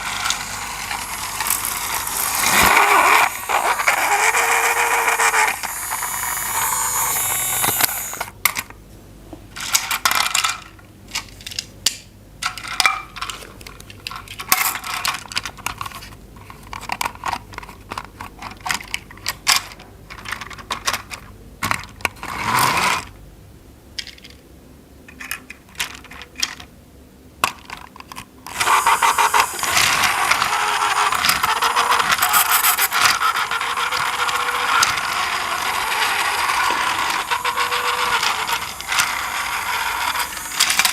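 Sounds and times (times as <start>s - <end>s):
plastic toy pieces clicking: 0.0s - 8.3s, 16.7s - 21.9s, 27.4s - 40.9s
toy motor whirring: 0.0s - 8.3s, 28.5s - 40.9s.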